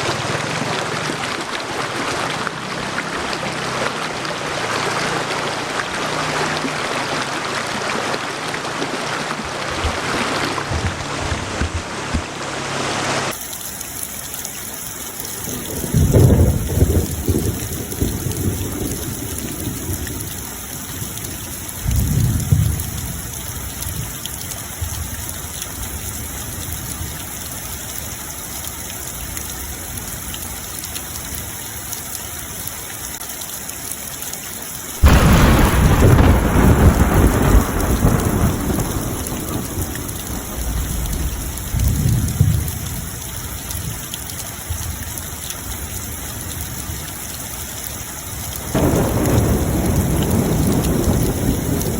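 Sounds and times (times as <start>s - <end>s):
steady rain: 0.0s - 51.9s
thunder rumbling: 15.4s - 24.1s, 35.0s - 44.0s, 48.5s - 51.9s
loud thunderclap: 15.5s - 20.3s, 21.8s - 23.3s, 35.0s - 43.2s, 48.6s - 51.9s.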